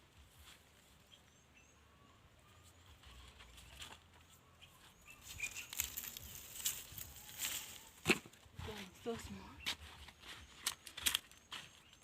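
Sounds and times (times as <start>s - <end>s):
faint bird chirps: 1.0s - 7.9s.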